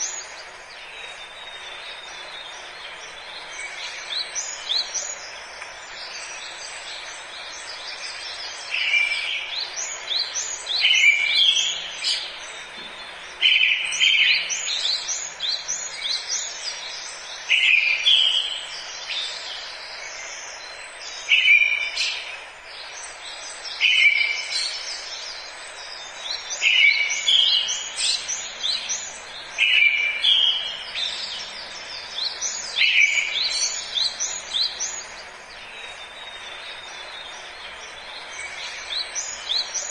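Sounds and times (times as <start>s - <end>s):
birds chirping: 0.0s - 39.9s
steady background hiss: 0.0s - 39.9s.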